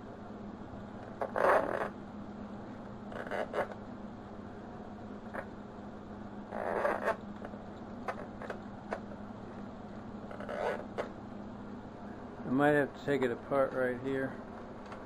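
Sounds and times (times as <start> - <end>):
faint steady hum: 0.0 - 15.0
retriever tool scraping: 1.2 - 2.0, 3.1 - 3.8, 6.5 - 7.5.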